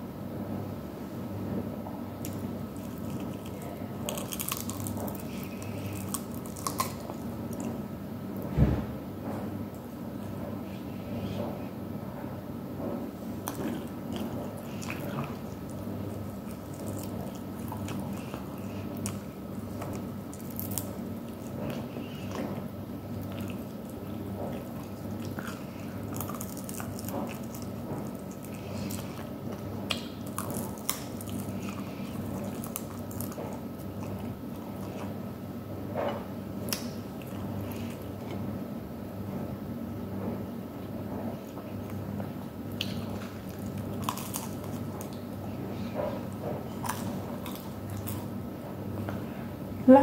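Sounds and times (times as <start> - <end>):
steady low hum: 0.0 - 50.0
person chewing crispy food: 2.2 - 7.9, 13.2 - 35.2, 36.5 - 38.4, 41.4 - 49.2.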